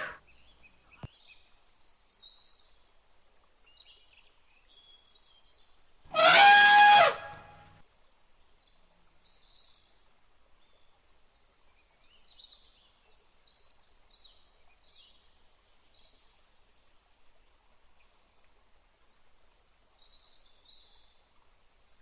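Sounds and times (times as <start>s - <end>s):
loud animal call: 6.1s - 7.7s.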